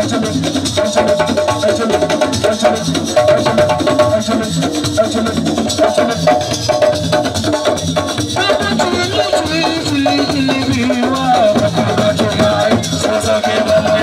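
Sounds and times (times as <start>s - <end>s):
fast drumming: 0.0s - 14.0s
wood block knocking beat: 5.7s - 14.0s.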